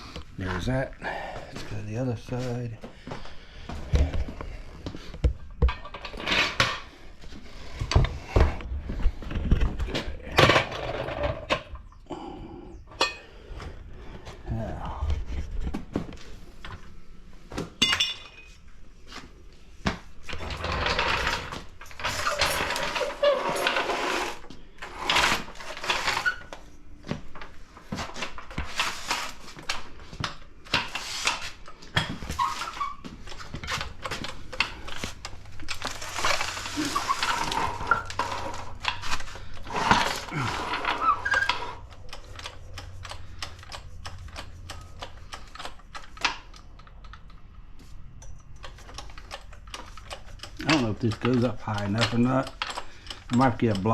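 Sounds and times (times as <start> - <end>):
metal tools clinking and scraping: 5.4 - 7.0, 12.9 - 13.4, 17.8 - 18.7, 20.3 - 26.7, 27.4 - 46.9, 48.2 - 53.9.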